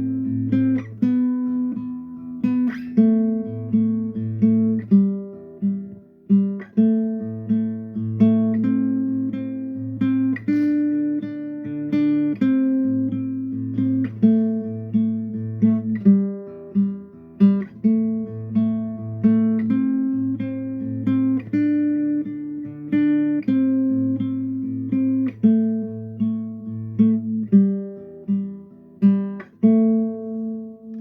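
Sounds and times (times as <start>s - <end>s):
acoustic guitar instrumental: 0.0s - 31.0s.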